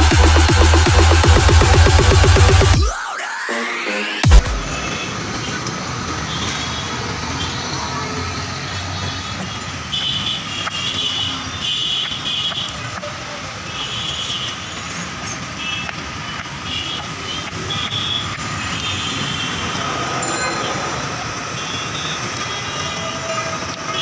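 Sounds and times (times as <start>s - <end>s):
vehicle rumbling: 19.0s - 22.6s
high squeals: 19.1s - 22.8s.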